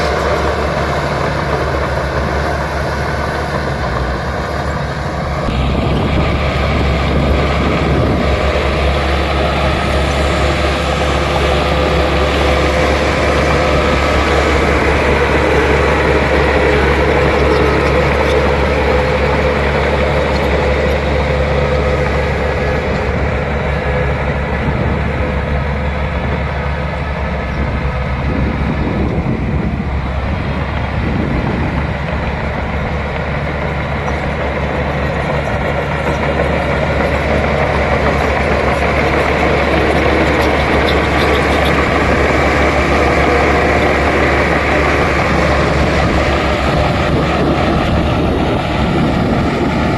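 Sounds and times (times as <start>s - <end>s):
bulldozer diesel engine: 0.0s - 49.9s.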